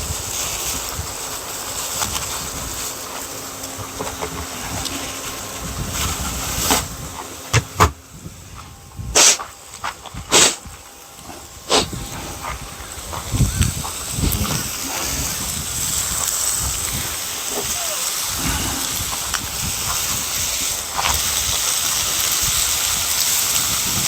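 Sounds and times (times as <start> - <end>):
steady hissing: 8.2 - 24.0.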